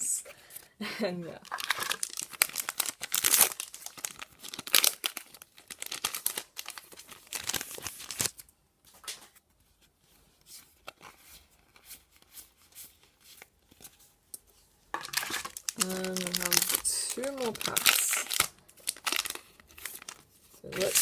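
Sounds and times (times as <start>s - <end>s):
foil wrapper crinkling and tearing: 1.4s - 8.5s, 15.0s - 21.0s
cards being handled: 6.9s - 21.0s.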